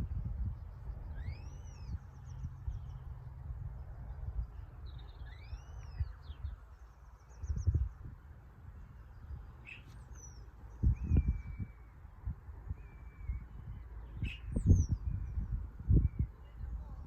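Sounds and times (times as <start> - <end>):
steady low rumble: 0.0 - 17.0
rapid bird trills: 1.0 - 3.2
birds calling: 9.0 - 12.1, 12.7 - 16.6.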